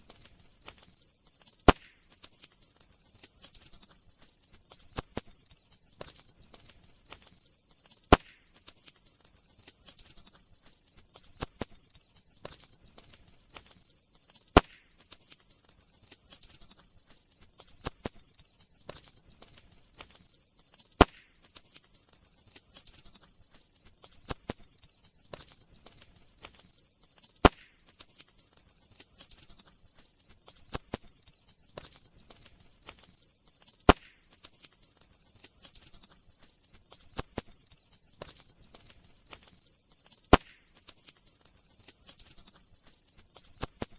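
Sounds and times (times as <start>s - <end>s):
campfire crackling: 0.0s - 43.9s
loud fire pops: 1.6s - 2.3s, 8.1s - 8.7s, 14.5s - 15.2s, 21.0s - 21.4s, 27.4s - 27.9s, 33.9s - 34.3s, 40.3s - 40.7s.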